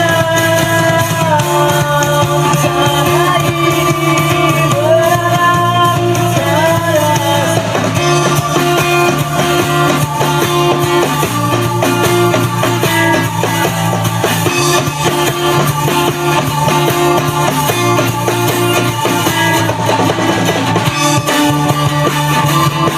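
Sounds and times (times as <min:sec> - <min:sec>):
drum kit beat: 0:00.0 - 0:22.9
electric guitar: 0:00.0 - 0:22.9
held notes: 0:00.0 - 0:22.9.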